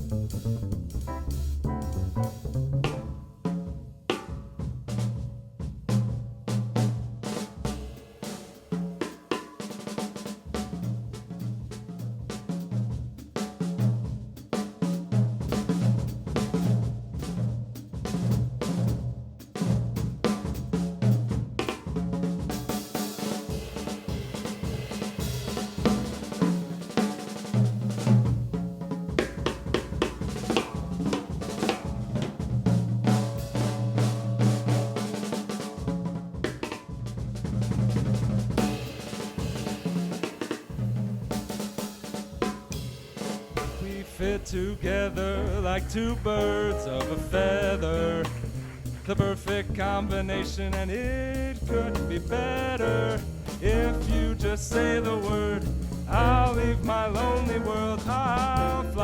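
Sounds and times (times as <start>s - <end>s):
bass line: 0.0s - 3.5s, 43.6s - 59.0s
drum kit groove: 0.0s - 59.0s
cymbals washing: 42.8s - 49.3s.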